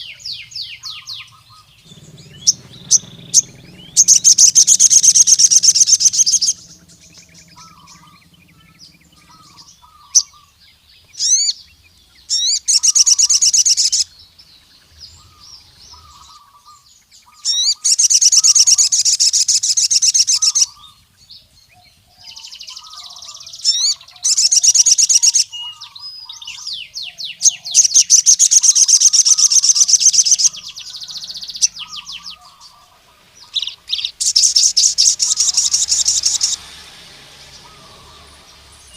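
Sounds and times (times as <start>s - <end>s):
short sharp bird notes: 0.0s - 11.5s
soft low bird chirps: 0.0s - 21.3s
bird trilling: 0.0s - 38.9s.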